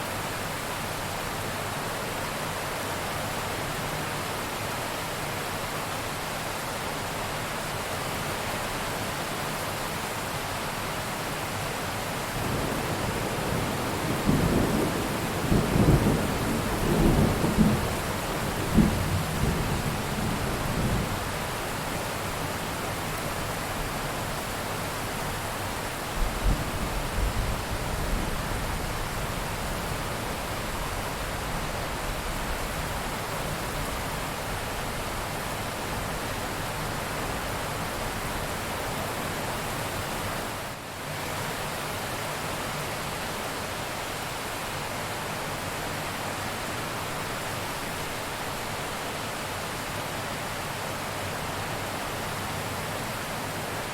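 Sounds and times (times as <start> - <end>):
rain hiss: 0.0 - 53.9.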